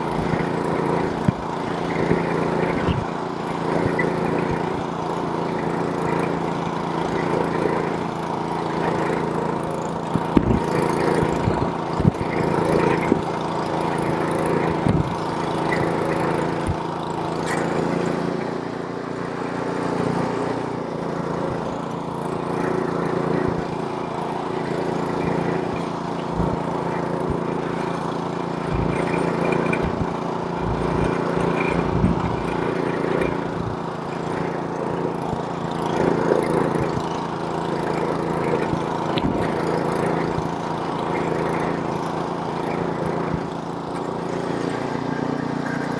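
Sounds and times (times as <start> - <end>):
snowblower engine running: 0.0 - 45.9
machine thumping through snow: 28.6 - 33.8.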